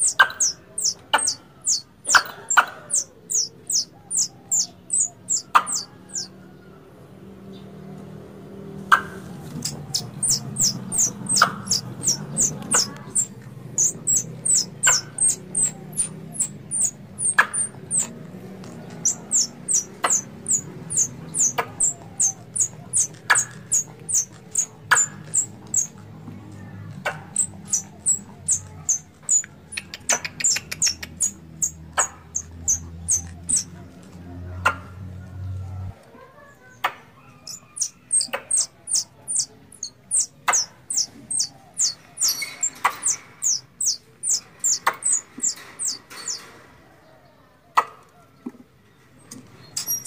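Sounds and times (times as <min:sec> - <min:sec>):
squirrel call high chirps: 0:00.0 - 0:06.3, 0:08.9 - 0:18.2, 0:18.9 - 0:25.9, 0:27.2 - 0:33.7, 0:37.3 - 0:46.4, 0:49.8 - 0:50.0.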